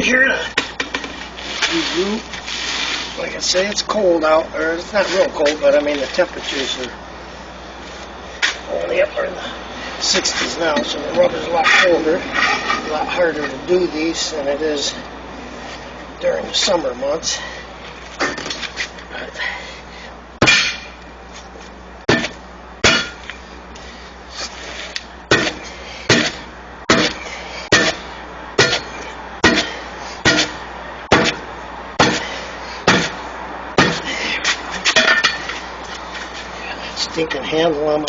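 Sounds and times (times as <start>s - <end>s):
hammer striking tire: 20.4s - 21.0s, 22.1s - 23.4s, 25.3s - 28.0s, 28.6s - 33.2s, 33.8s - 34.1s, 34.8s - 35.5s.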